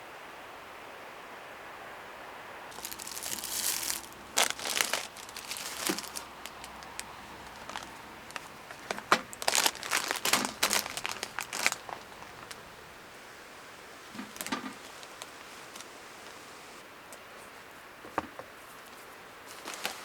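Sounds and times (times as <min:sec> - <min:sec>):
crinkling and crumpling: 0:02.7 - 0:12.8, 0:14.1 - 0:16.5, 0:18.6 - 0:20.0.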